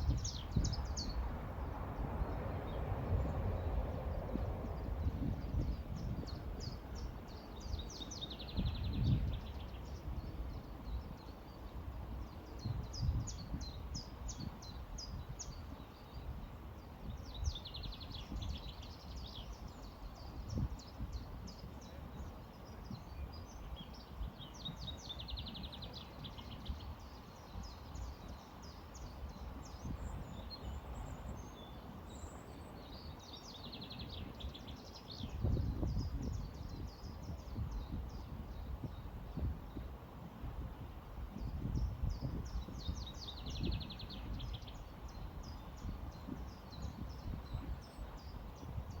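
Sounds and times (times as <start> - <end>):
river water rumbling: 0.0 - 8.7
songbirds chirping: 0.0 - 49.0.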